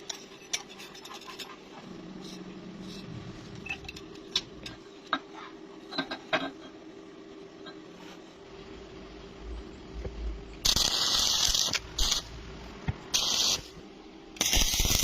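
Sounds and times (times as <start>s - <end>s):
low hum: 1.7s - 4.9s, 8.4s - 14.3s.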